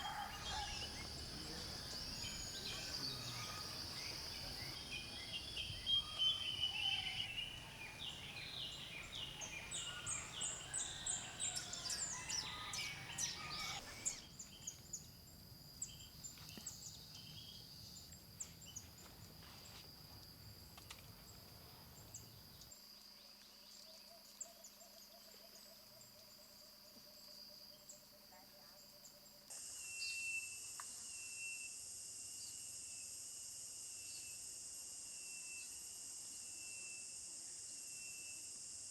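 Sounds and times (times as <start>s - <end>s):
wild birds calling and singing: 0.0s - 15.1s
high insect drone: 0.0s - 22.7s.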